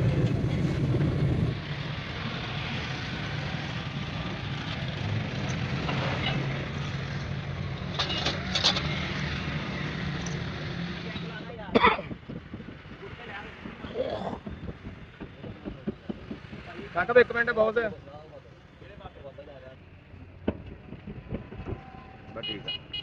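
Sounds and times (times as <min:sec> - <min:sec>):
vehicle engine running: 0:00.0 - 0:01.6.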